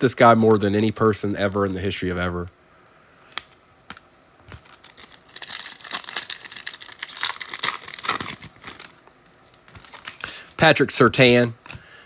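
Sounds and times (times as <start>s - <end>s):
foil wrapper tearing and crinkling: 4.5s - 9.0s, 9.6s - 10.4s.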